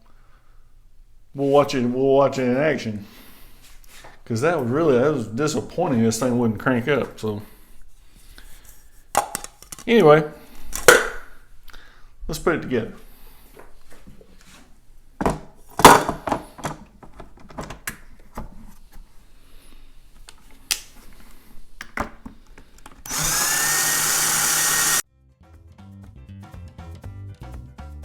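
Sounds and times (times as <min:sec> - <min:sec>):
cordless drill spinning up: 0:23.0 - 0:25.0
upbeat background music: 0:25.5 - 0:28.0.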